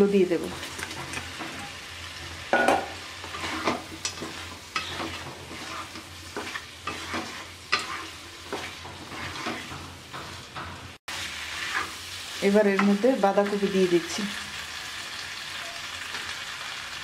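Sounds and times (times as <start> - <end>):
food sizzling in oil: 0.0 - 17.0
wooden spatula scraping pan: 3.2 - 10.8.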